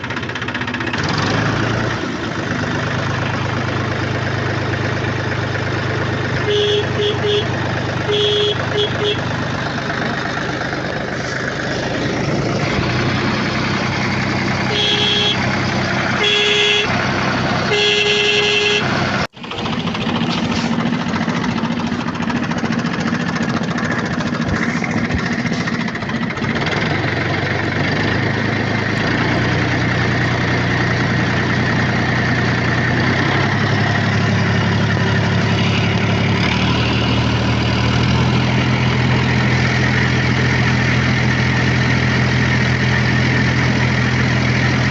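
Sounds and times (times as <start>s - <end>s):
vehicle engine running: 0.0s - 44.9s
horn toots: 6.4s - 9.3s, 14.1s - 19.1s.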